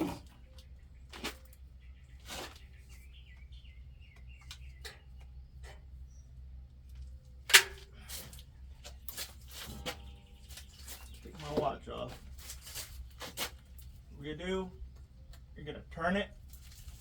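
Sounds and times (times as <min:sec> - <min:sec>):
bird chirping: 0:00.0 - 0:06.4, 0:09.7 - 0:12.1.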